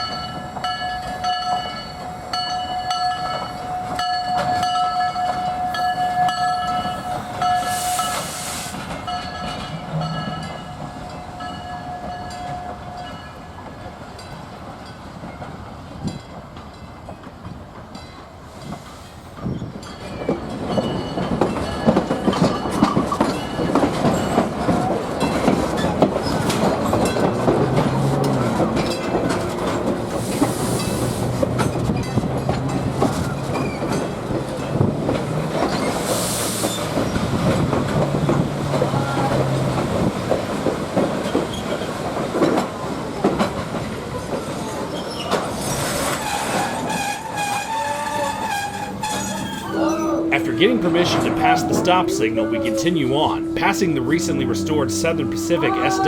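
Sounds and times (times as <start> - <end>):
train wheels clattering over rails: 13.9 - 49.4
steady high tone: 49.7 - 56.0.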